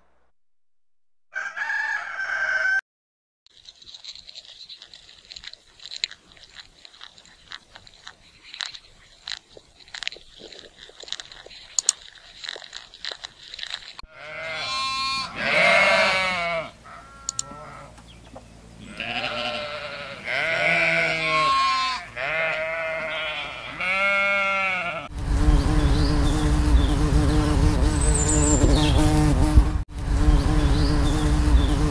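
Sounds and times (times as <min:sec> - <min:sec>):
faint clicks and rustling: 0:03.5 - 0:14.1
lamb bleating: 0:14.1 - 0:18.0, 0:18.8 - 0:25.1.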